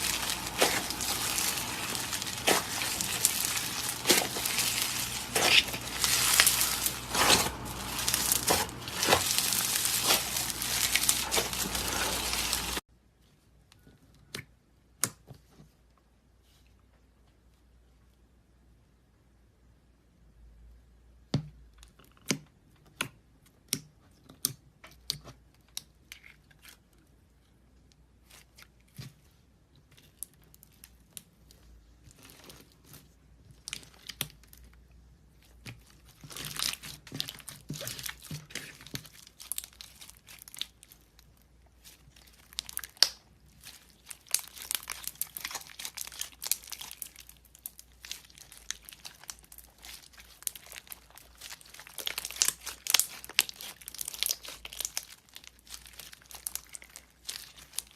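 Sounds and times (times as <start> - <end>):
slime popping and crackling: 0.0 - 12.8, 36.2 - 57.9.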